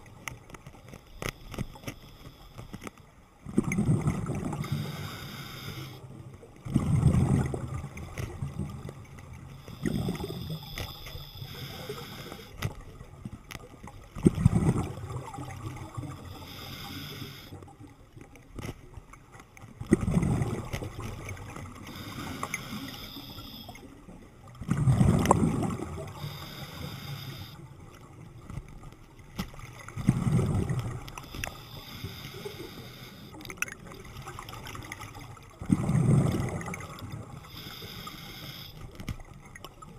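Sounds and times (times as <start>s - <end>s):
underwater breath bubbles gurgling: 0.0s - 18.7s, 19.6s - 39.9s
faint hiss: 4.5s - 6.1s, 9.5s - 12.7s, 16.0s - 17.7s, 21.8s - 23.9s, 26.0s - 27.7s, 31.1s - 33.4s, 37.3s - 39.0s.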